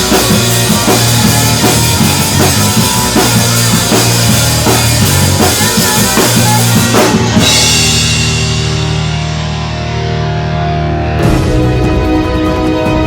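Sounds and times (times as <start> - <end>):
different music: 0.0 - 13.0
rock drum kit pounding: 0.0 - 13.0.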